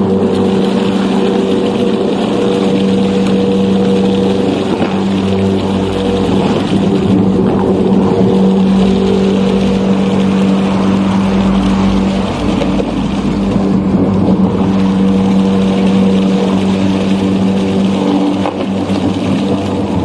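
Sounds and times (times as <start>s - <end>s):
pump electric hum: 0.0s - 20.0s
water rushing and churning: 0.0s - 20.0s.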